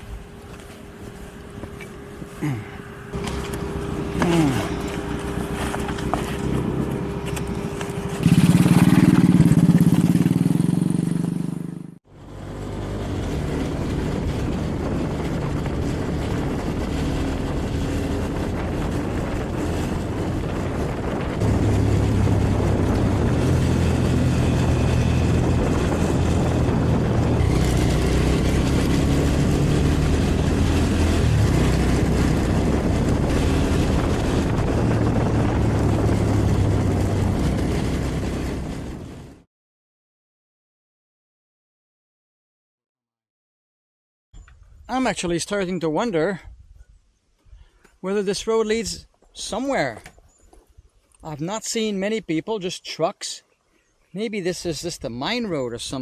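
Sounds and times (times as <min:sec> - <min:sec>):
road and wind noise: 0:00.0 - 0:39.5
motorcycle engine running: 0:00.1 - 0:39.5.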